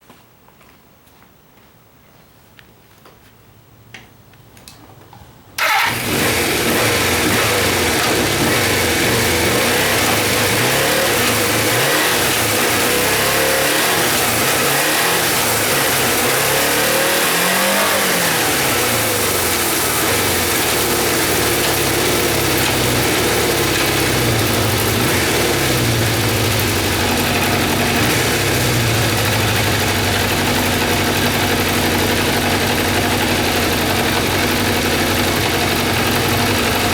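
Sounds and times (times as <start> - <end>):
motorcycle engine starting and idling: 5.6 - 36.9
motorcycle throttle blips: 5.6 - 36.9.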